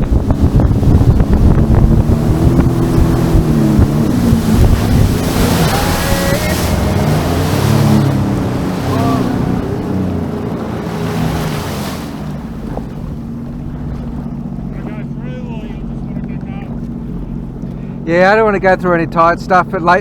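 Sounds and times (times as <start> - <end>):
water spray rushing: 0.0 - 12.7
jet ski engine: 0.0 - 20.0
wind: 0.0 - 20.0.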